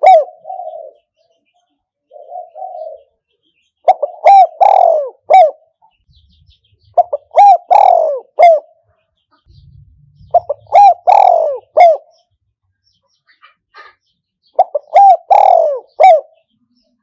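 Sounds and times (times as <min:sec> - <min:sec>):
dove cooing: 0:00.0 - 0:01.2, 0:02.1 - 0:03.2, 0:03.8 - 0:05.8, 0:06.8 - 0:08.8, 0:09.5 - 0:12.3, 0:14.6 - 0:16.5.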